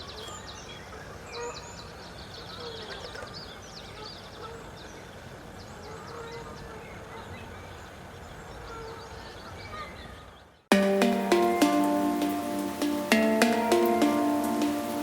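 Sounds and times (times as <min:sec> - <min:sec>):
forest hiss: 0:10.7 - 0:15.0.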